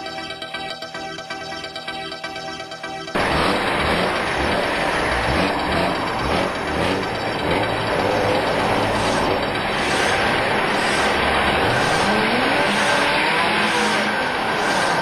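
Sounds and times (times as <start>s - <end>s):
car engine revving hard: 3.2s - 15.0s.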